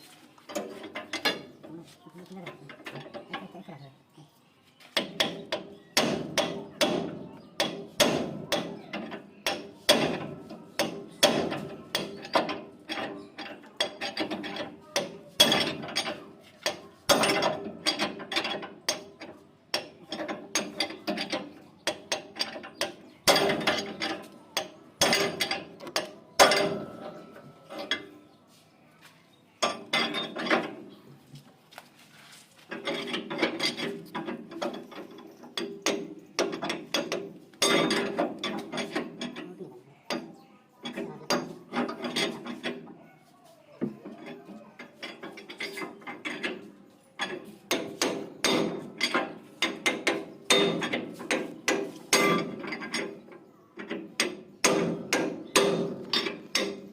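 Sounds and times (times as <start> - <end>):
hand tools clicking on metal: 5.0 - 28.1, 32.7 - 43.0, 44.2 - 53.2, 53.8 - 56.9.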